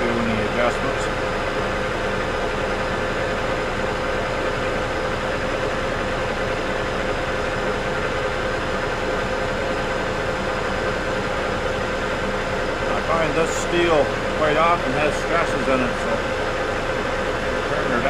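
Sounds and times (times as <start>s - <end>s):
lathe running: 0.0s - 18.0s.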